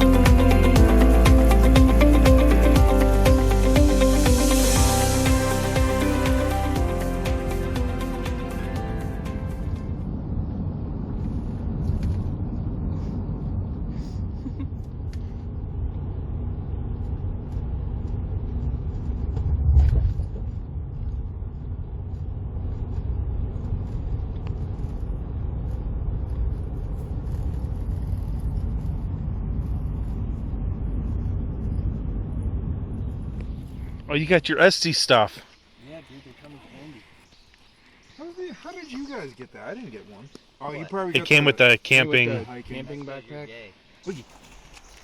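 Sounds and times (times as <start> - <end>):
steady low rumble: 0.0 - 34.1.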